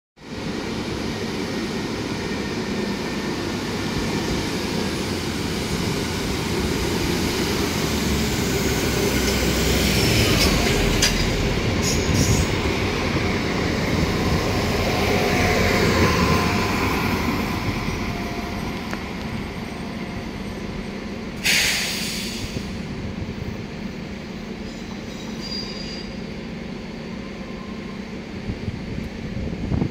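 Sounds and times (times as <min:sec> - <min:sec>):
diesel train running past: 0:00.2 - 0:29.9
brief hiss: 0:21.4 - 0:22.8
faint wheel squeal: 0:24.7 - 0:26.2.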